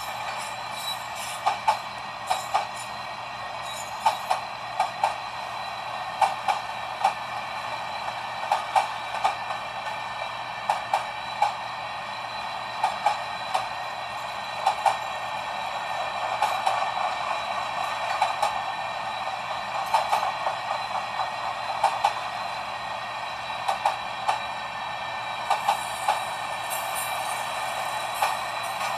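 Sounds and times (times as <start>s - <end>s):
train wheels clicking over rail joint: 0.0s - 5.4s, 6.1s - 7.2s, 8.0s - 10.0s, 10.6s - 11.6s, 12.8s - 13.8s, 14.5s - 15.2s, 16.1s - 18.7s, 19.7s - 22.4s, 23.6s - 24.5s, 25.4s - 28.9s
freight train rolling: 0.0s - 28.9s.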